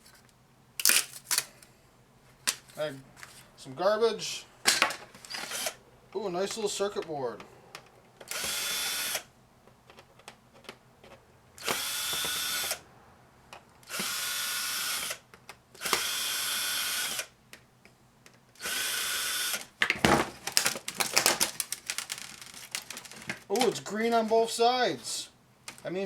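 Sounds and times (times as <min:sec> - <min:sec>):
clatter of loose pieces: 0:00.0 - 0:01.7, 0:19.8 - 0:23.8
cordless drill bursts: 0:05.2 - 0:05.8, 0:08.2 - 0:09.3, 0:11.6 - 0:12.8, 0:13.8 - 0:15.2, 0:15.8 - 0:17.4, 0:18.6 - 0:19.7.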